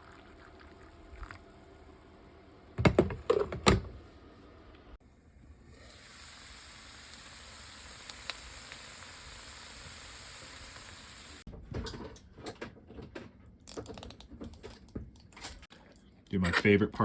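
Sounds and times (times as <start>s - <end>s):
food sizzling in a frying pan: 5.6s - 11.5s
small irregular clicks and knocks: 11.6s - 15.7s.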